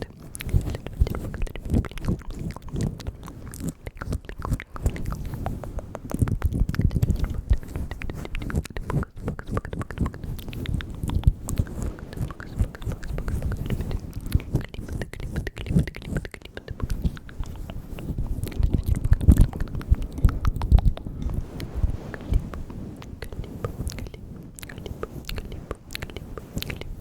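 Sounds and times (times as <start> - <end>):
wet lip and tongue clicks: 0.0 - 27.0.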